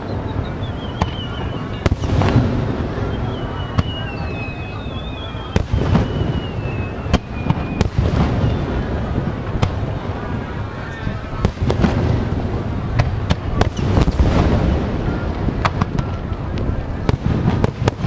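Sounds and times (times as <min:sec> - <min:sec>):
descending whistling tones: 0:00.0 - 0:09.1
fireworks bangs: 0:00.0 - 0:18.0
low continuous boom: 0:00.0 - 0:18.0.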